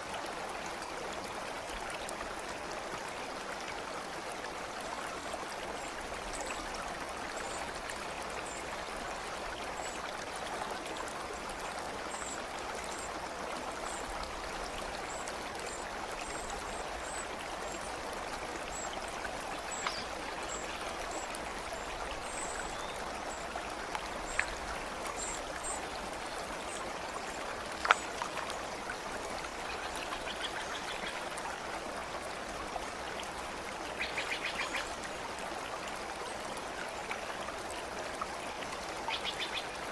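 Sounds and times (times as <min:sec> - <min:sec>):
stream babbling: 0:00.0 - 0:39.9
drip-like clicks: 0:19.7 - 0:20.1, 0:27.7 - 0:28.5.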